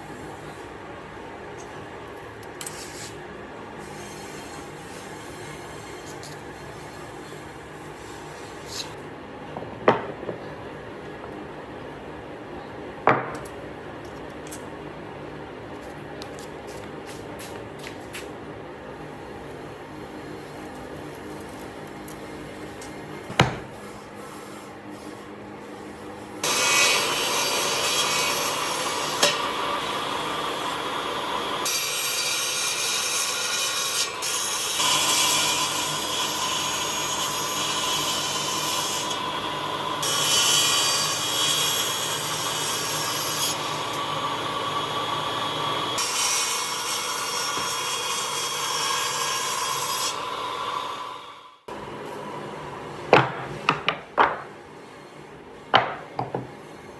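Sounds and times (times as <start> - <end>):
tool cutting or sanding wood: 2.6 - 3.2, 3.8 - 9.0.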